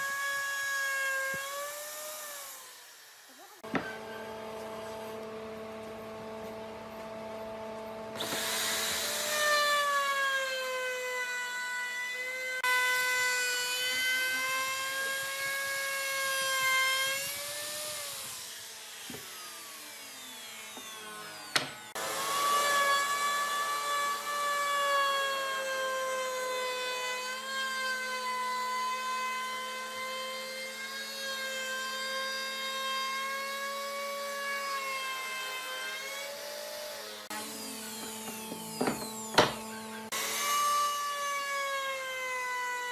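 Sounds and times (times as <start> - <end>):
power tool motor whining: 0.0 - 42.9.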